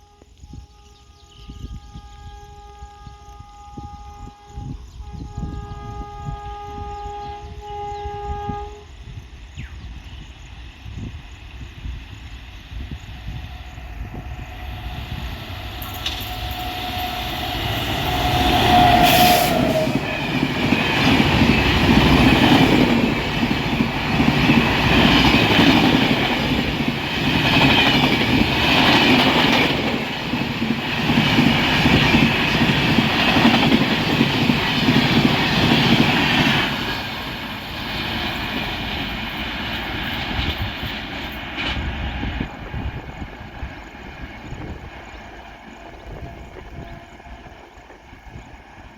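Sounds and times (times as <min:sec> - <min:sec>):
train horn: 0:00.0 - 0:09.3, 0:13.2 - 0:26.6
train wheels clattering over rails: 0:11.5 - 0:47.1.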